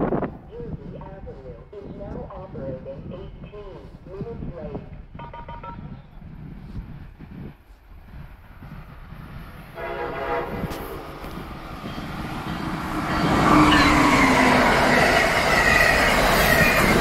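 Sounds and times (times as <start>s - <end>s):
train rumbling: 0.0s - 17.0s
train horn: 9.8s - 11.1s.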